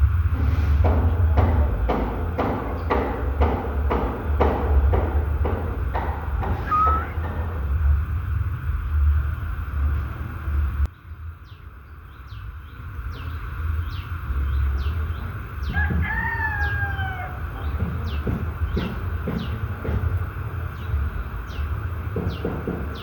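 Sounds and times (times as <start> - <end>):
rooster crowing: 6.4 - 7.4, 15.6 - 17.9
small bird chirping: 6.6 - 7.4.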